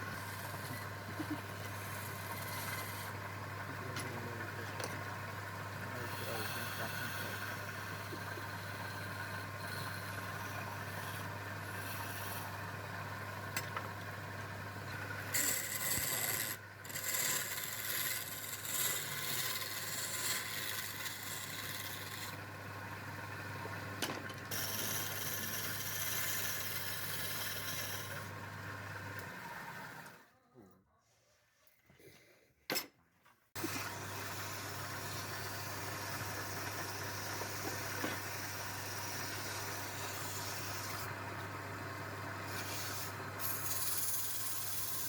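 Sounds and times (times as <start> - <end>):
wood being sanded: 0.0 - 3.2, 5.9 - 12.5, 15.3 - 22.4, 24.5 - 28.3, 33.8 - 41.1, 42.4 - 45.0.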